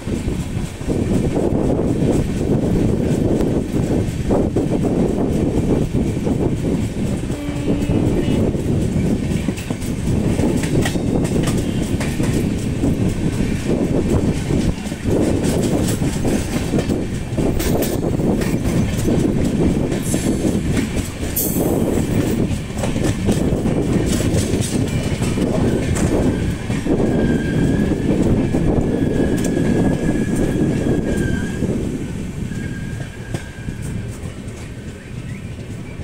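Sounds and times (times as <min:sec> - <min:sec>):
train wheels rumbling on rail: 0:00.0 - 0:36.0
wheels clacking over rail joints: 0:00.1 - 0:36.0
high wheel squeal: 0:25.6 - 0:28.1, 0:28.9 - 0:31.7, 0:32.5 - 0:36.0.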